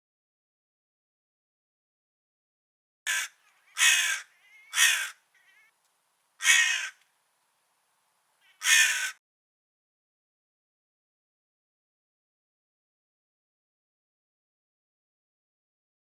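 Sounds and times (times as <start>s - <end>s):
crow cawing: 3.1s - 5.8s, 6.4s - 7.0s, 8.4s - 9.2s
faint soft calls: 3.1s - 5.8s.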